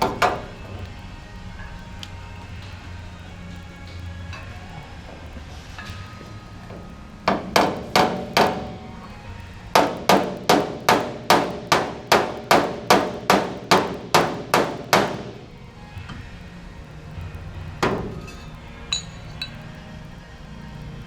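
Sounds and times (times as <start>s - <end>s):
hammer tapping on sheet metal: 7.3s - 8.8s, 9.8s - 15.4s.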